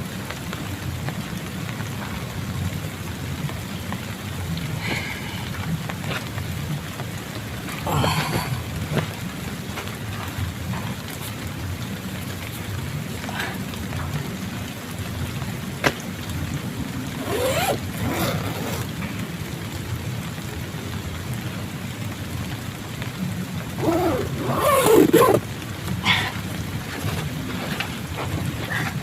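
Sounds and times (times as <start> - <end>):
rain drumming on plastic tarp: 0.0 - 29.0
rustling: 17.2 - 19.0, 23.8 - 29.0.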